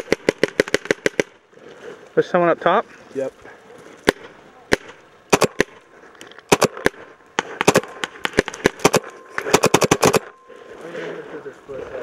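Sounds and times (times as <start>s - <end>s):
paintball markers firing: 0.0s - 1.4s, 4.0s - 10.3s.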